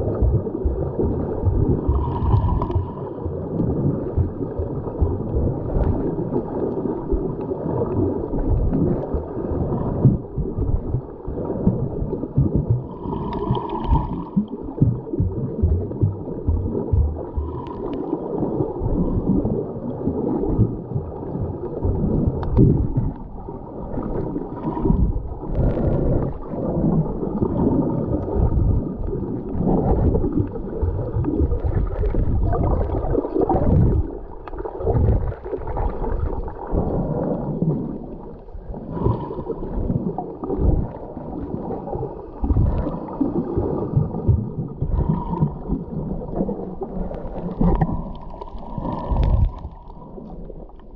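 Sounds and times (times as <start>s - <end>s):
bubbles gurgling underwater: 0.0s - 50.9s
diver's regulator breathing: 1.5s - 3.5s, 12.8s - 15.2s, 47.2s - 50.4s.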